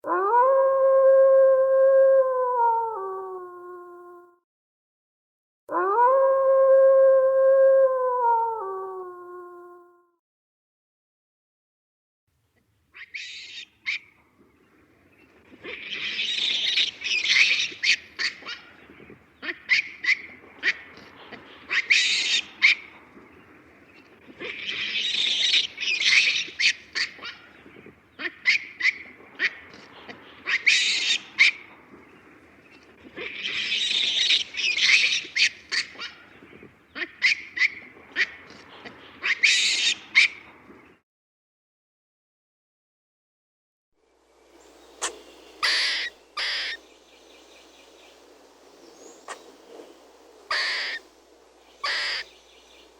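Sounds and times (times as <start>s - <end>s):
animal harsh squawking calls: 21.7s - 22.8s, 30.4s - 31.6s, 45.0s - 46.8s, 50.5s - 51.0s, 51.8s - 52.3s.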